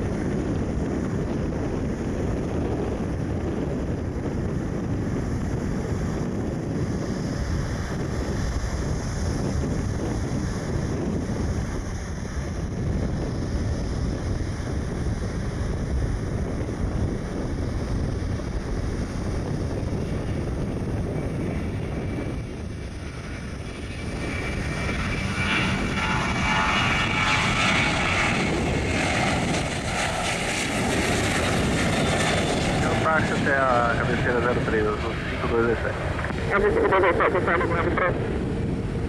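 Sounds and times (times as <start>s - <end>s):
wind: 0.0s - 39.0s
jet engines spooling up: 15.0s - 39.0s.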